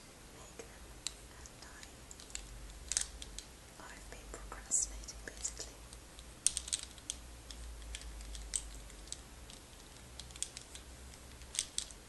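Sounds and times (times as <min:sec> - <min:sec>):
clicking of small hard objects: 0:01.0 - 0:03.5, 0:05.3 - 0:12.0.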